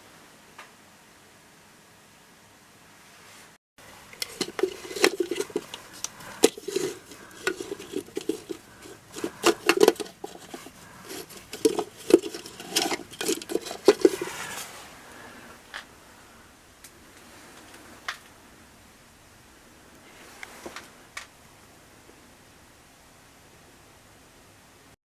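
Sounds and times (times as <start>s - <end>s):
stones clicking and knocking: 4.1s - 14.6s.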